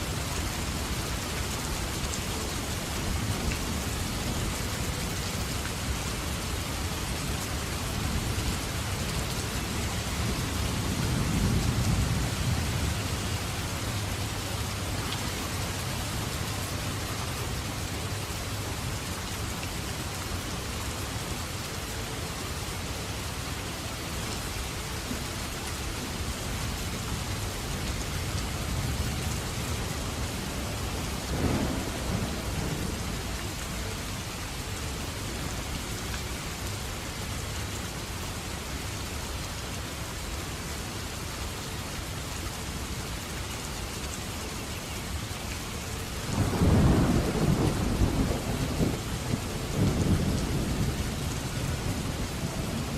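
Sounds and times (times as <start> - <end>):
heavy rain: 0.0 - 52.9
thunder rumbling and cracking: 31.1 - 33.4, 46.3 - 52.9.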